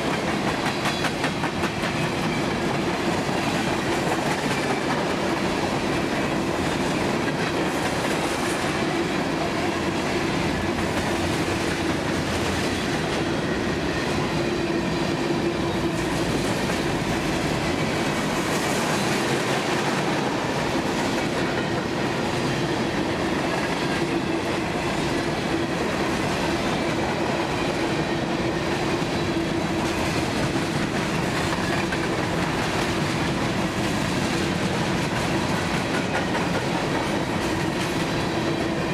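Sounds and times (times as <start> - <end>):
freight train rolling past: 0.0 - 38.9
wheels clacking over rail joints: 29.8 - 38.8.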